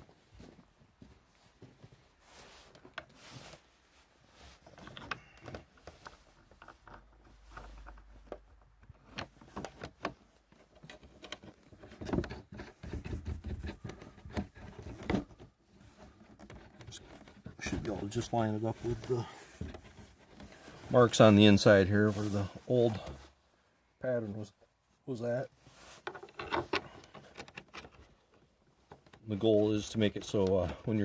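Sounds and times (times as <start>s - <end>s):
plastic clicks knocks and rubbing: 4.8s - 18.2s, 26.0s - 29.4s.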